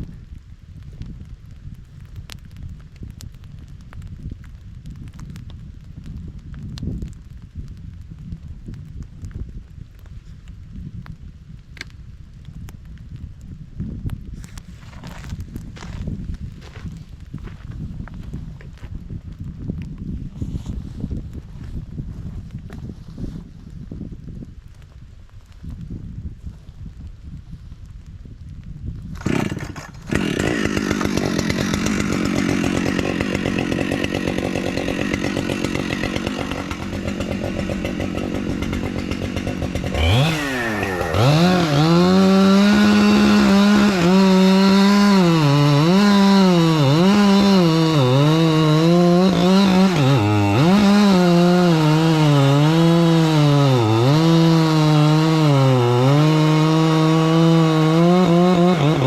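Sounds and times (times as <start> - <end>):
chainsaw cutting wood: 29.1 - 59.0.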